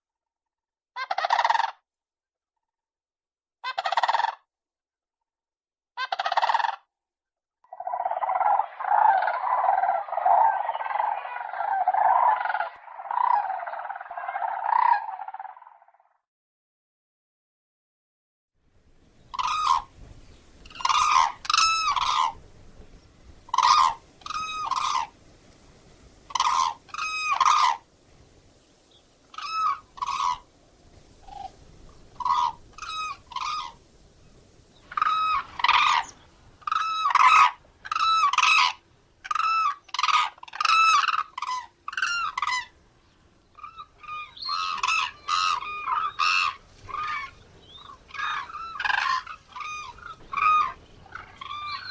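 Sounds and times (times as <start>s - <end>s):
crane trumpeting calls: 7.7s - 15.8s, 19.3s - 20.0s, 20.6s - 22.4s, 23.4s - 25.2s, 26.0s - 27.8s, 29.3s - 33.9s, 34.8s - 42.8s, 43.6s - 51.9s.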